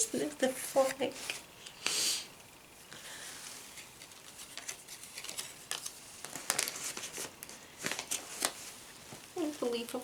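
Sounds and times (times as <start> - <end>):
paper rustling and crinkling: 3.6 - 10.0.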